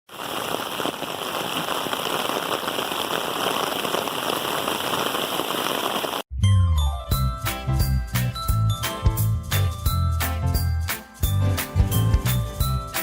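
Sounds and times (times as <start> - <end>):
steady rain falling: 0.1 - 6.3
chiming music jingle: 6.3 - 13.0.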